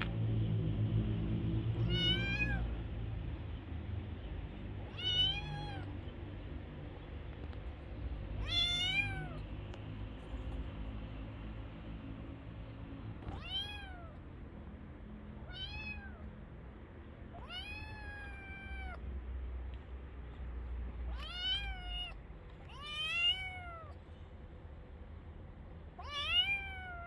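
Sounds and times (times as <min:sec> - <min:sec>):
cat meowing: 0:01.8 - 0:02.7, 0:04.9 - 0:05.9, 0:08.4 - 0:09.4, 0:13.2 - 0:14.2, 0:15.4 - 0:16.3, 0:17.3 - 0:19.0, 0:21.1 - 0:24.0, 0:26.0 - 0:27.0.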